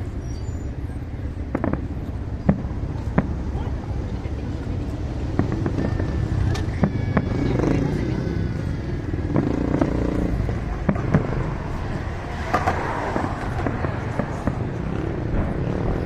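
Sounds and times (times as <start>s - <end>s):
crowd voices: 0.0s - 16.0s
low rumble: 0.0s - 16.0s
fireworks bangs and pops: 0.7s - 8.1s, 9.2s - 16.0s.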